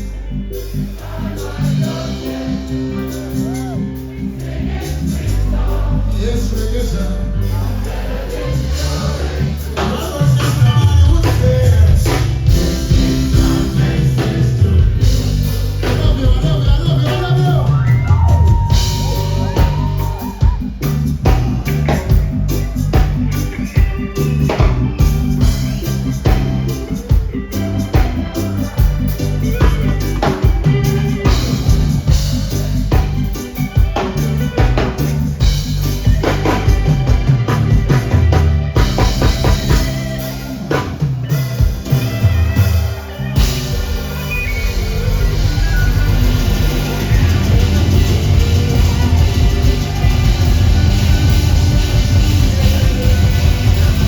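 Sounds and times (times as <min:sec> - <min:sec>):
reggae band playing: 0:00.0 - 0:54.0.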